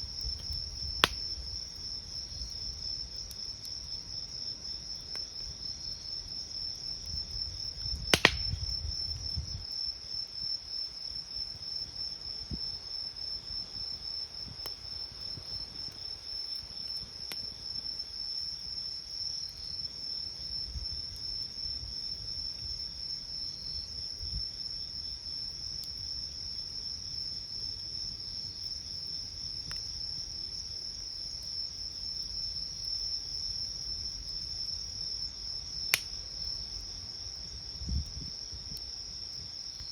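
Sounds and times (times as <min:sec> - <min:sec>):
campfire popping and crackling: 0:00.0 - 0:09.8, 0:35.8 - 0:37.4
crickets trilling: 0:00.0 - 0:39.9.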